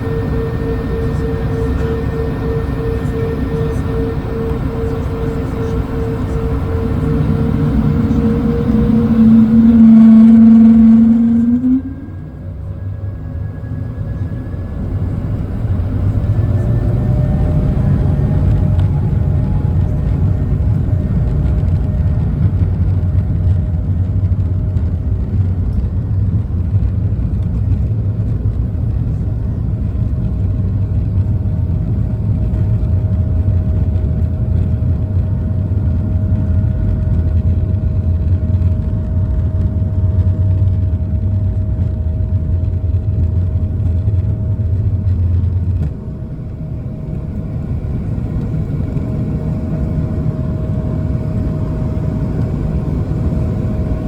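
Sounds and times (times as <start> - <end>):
jet engines at takeoff power: 0.0 - 54.0
low rolling rumble of wheels: 0.0 - 54.0.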